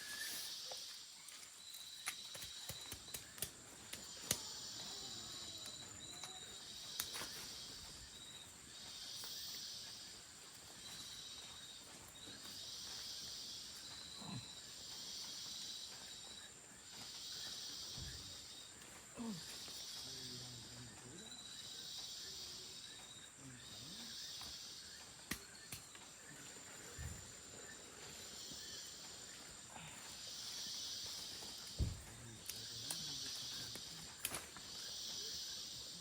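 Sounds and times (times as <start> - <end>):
insects buzzing: 0.0 - 36.0
steady high insect trill: 0.0 - 36.0
sharp clicks: 2.0 - 4.5.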